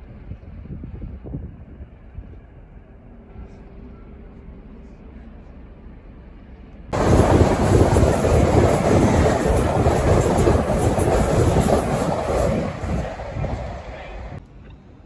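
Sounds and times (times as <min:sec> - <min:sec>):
train passing: 0:01.2 - 0:14.4
wheels clickety-clack: 0:07.0 - 0:13.6.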